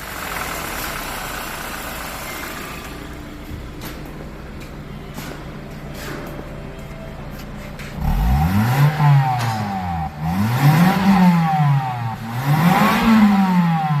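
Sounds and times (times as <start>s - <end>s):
car engine revving: 7.3s - 14.0s.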